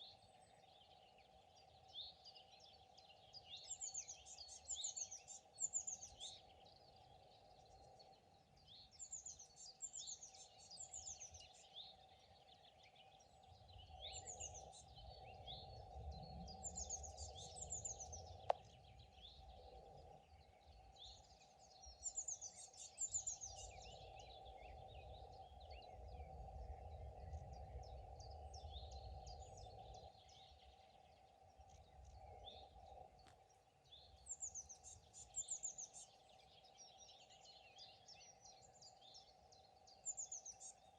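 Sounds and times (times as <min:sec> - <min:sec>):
songbirds trilling and chirping: 0:00.0 - 0:40.9.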